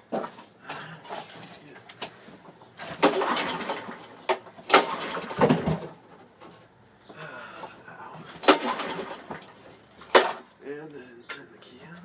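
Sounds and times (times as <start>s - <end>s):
knocks and clatter: 2.0s - 6.8s, 8.3s - 10.6s.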